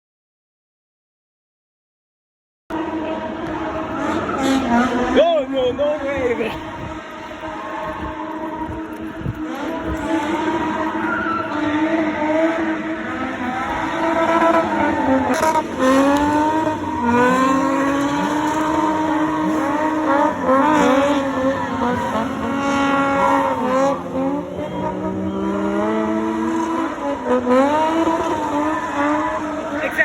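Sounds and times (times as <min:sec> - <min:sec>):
car engine revving: 0:02.7 - 0:30.0
tyres squealing: 0:13.4 - 0:30.0.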